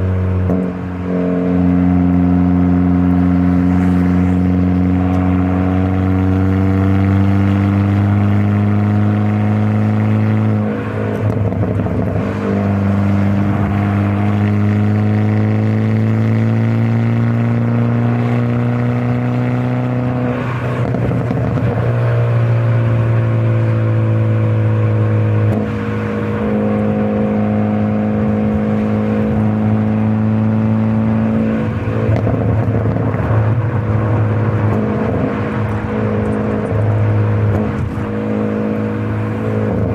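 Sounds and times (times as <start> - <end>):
car engine and exhaust under load: 0.0 - 39.9
gear change: 24.5 - 39.9.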